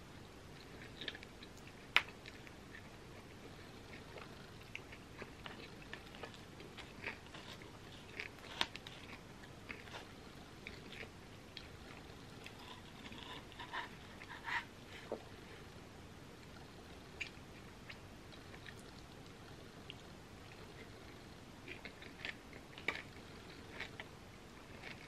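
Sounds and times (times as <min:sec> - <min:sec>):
person chewing: 0:00.6 - 0:15.3, 0:19.9 - 0:25.0.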